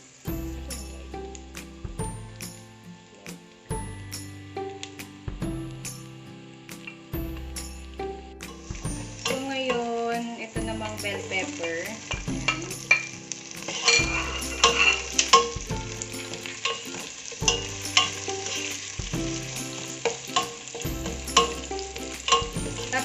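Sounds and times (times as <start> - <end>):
onion and garlic sizzling in oil: 0.0 - 23.0
spatula scraping and tapping pan: 10.9 - 23.0.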